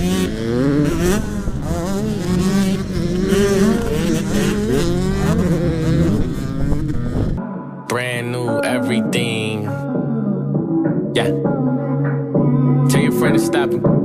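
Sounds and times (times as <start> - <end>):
dirt bike engines revving: 0.0 - 7.4.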